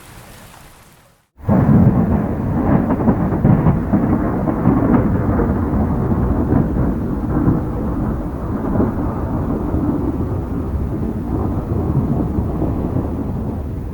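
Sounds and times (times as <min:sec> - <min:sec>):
storm low rumble: 0:01.4 - 0:13.9.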